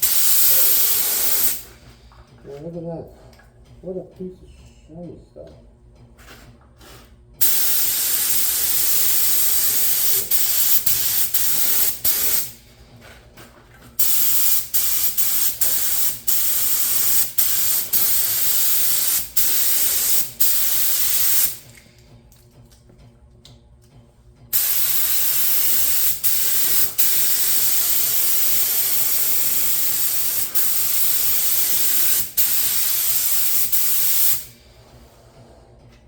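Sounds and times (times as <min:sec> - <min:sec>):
paint spray gun hissing: 0:00.0 - 0:01.7, 0:07.4 - 0:12.6, 0:14.0 - 0:21.6, 0:24.6 - 0:34.5.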